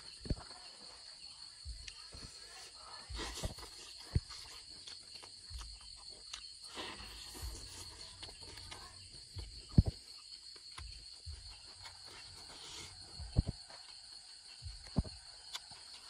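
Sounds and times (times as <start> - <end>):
person chewing with crunches: 1.8 - 16.0.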